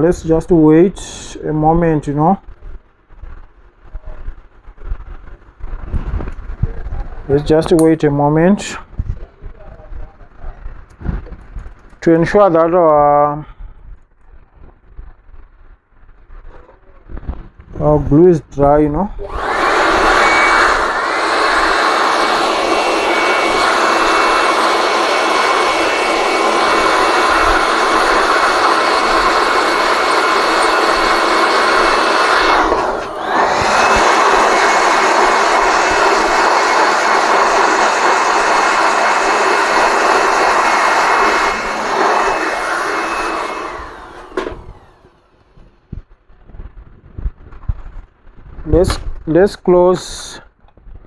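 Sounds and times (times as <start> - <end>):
hot-air blower running: 19.0 - 46.1.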